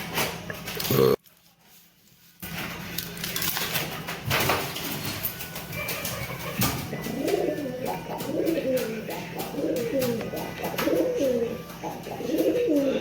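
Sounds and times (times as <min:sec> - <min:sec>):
pigeon cooing: 0:05.6 - 0:13.0.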